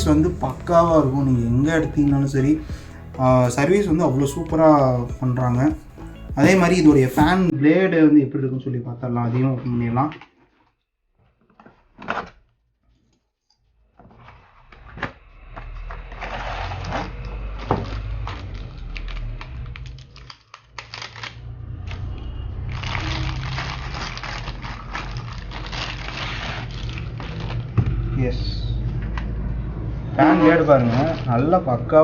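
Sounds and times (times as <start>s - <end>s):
packaging rustling and scraping: 13.8s - 28.0s, 30.4s - 31.3s.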